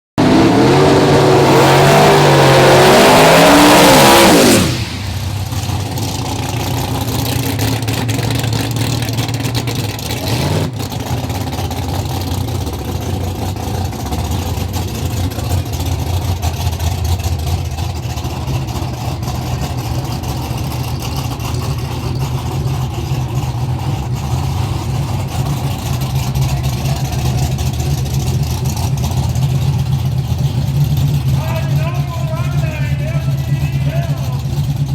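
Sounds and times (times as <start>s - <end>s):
truck engines revving: 0.1s - 34.9s
engine idling rumble: 4.1s - 34.9s.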